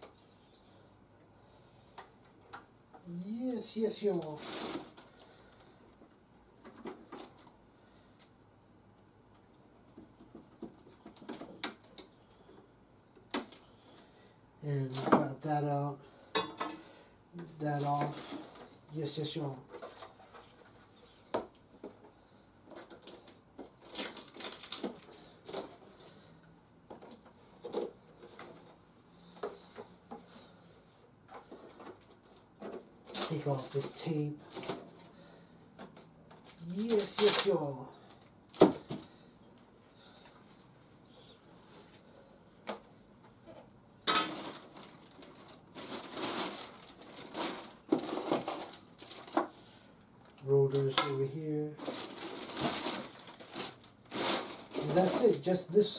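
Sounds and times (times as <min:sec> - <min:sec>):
packaging rustling: 0:04.0 - 0:05.3, 0:22.7 - 0:26.2, 0:31.4 - 0:35.3, 0:36.3 - 0:39.2, 0:44.1 - 0:49.7, 0:51.8 - 0:55.9.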